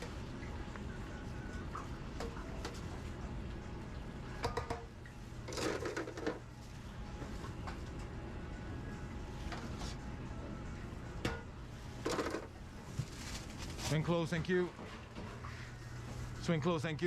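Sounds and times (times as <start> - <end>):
kitchen equipment humming: 0.0 - 17.0.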